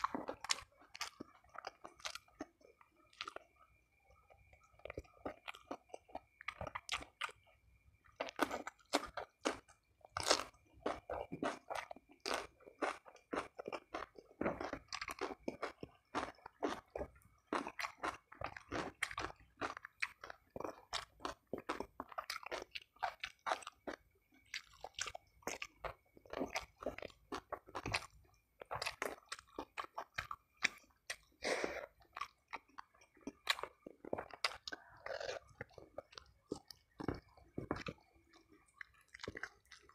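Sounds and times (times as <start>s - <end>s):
person chewing and crunching food: 0.0s - 39.9s.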